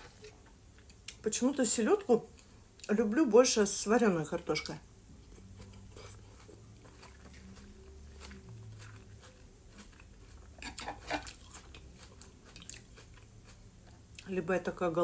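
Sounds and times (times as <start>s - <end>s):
person chewing salad: 5.2s - 14.3s
fork scraping bowl: 5.6s - 6.5s.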